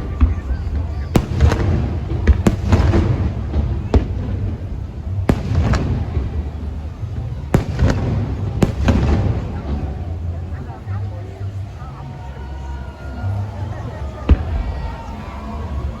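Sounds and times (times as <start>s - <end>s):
fireworks bangs echoing: 0.0s - 10.4s
steady low rumble: 0.0s - 10.8s.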